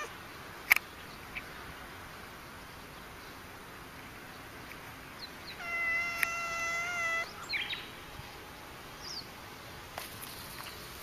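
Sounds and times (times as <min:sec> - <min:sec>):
faint bird chirps: 0:04.6 - 0:08.0
cat meowing: 0:05.6 - 0:07.3.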